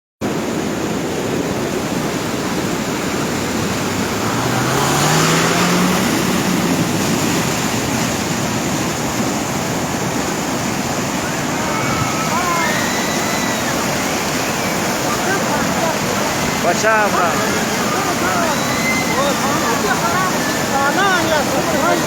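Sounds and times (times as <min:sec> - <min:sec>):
floodwater rushing: 0:00.2 - 0:22.0
motor rising in pitch: 0:03.0 - 0:07.8.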